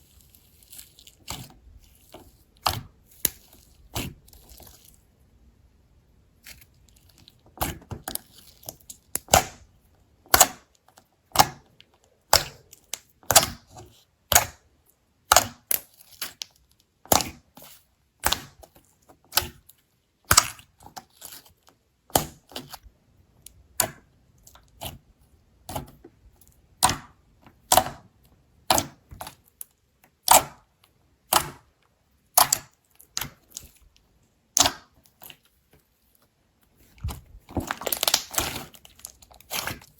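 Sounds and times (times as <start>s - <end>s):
slime crackling snaps: 37.8s - 38.5s.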